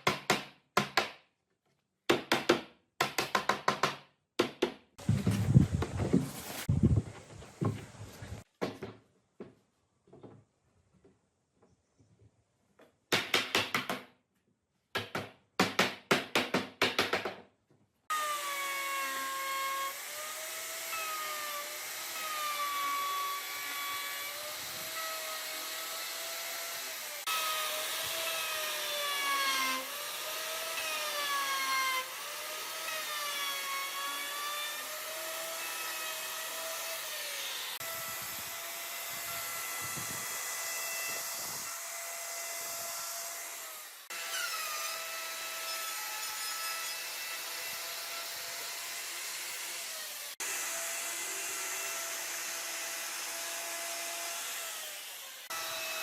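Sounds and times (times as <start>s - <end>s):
hand sawing strokes: 5.0s - 6.8s, 18.1s - 56.0s.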